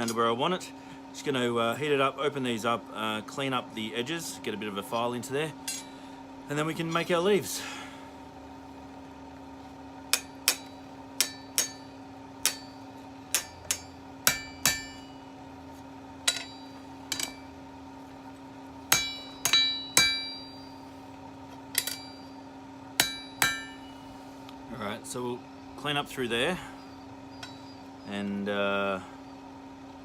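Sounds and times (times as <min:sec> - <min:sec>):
steady hum: 0:00.0 - 0:30.0
hammer striking steel on anvil: 0:05.6 - 0:06.0, 0:10.1 - 0:15.4, 0:16.2 - 0:17.6, 0:18.9 - 0:20.9, 0:21.7 - 0:22.4, 0:23.0 - 0:24.1, 0:27.4 - 0:27.8.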